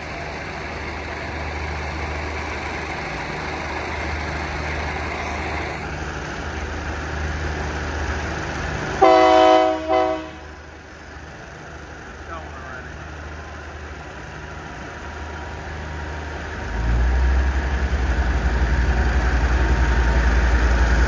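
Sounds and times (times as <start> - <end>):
diesel locomotive idling: 0.0 - 21.0
train horn: 9.0 - 10.6.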